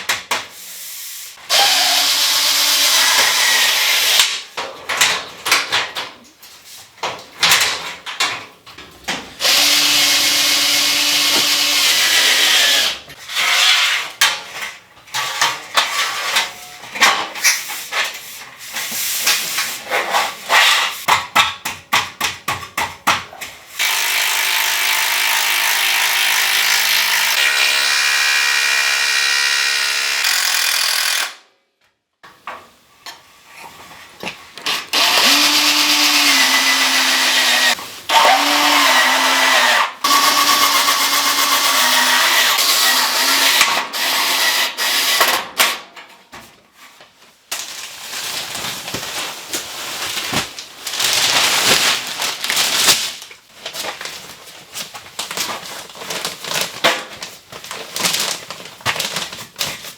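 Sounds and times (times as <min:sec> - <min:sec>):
power drill running in bursts: 0:01.5 - 0:04.1, 0:35.0 - 0:39.3.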